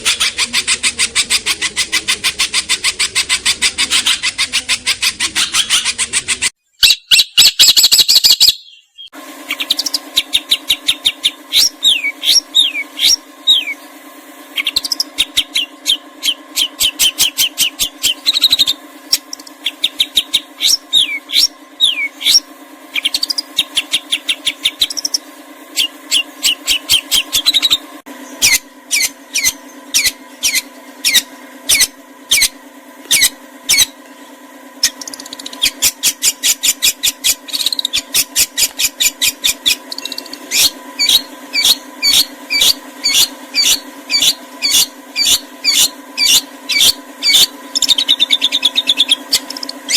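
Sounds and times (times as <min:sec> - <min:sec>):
low hum: 0:00.0 - 0:06.6, 0:08.9 - 0:49.9
songbird whistled notes: 0:06.8 - 0:13.8, 0:14.6 - 0:25.2, 0:25.8 - 0:27.8, 0:34.8 - 0:49.9.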